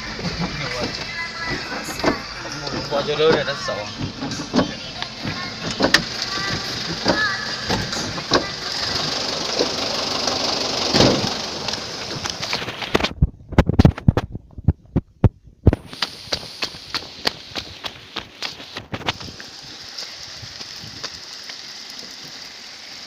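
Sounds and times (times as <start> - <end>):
vehicle running on rough track: 0.0 - 23.0
sharp knocks and thumps: 0.2 - 8.6, 10.9 - 11.4.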